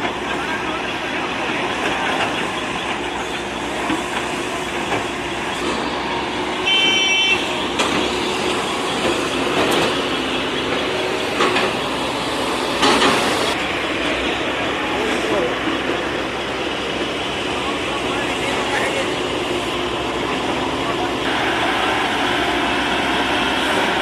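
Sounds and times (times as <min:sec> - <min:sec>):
general bustle: 0:00.0 - 0:24.0
vehicle engines running: 0:00.0 - 0:24.0
short high-pitched horn toot: 0:06.6 - 0:07.5.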